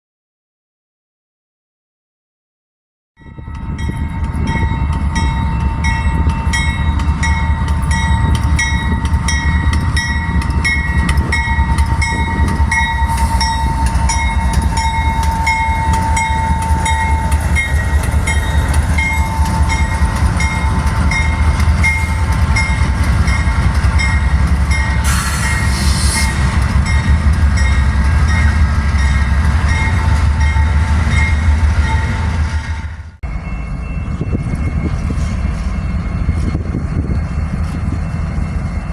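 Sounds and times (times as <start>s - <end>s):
train rumbling: 3.2s - 38.9s
short hiss: 25.1s - 26.4s.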